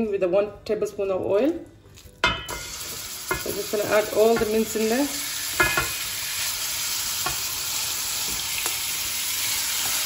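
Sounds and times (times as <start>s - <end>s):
meat sizzling in oil: 2.5s - 10.0s
spatula knocking pan: 3.3s - 4.7s, 5.6s - 6.0s.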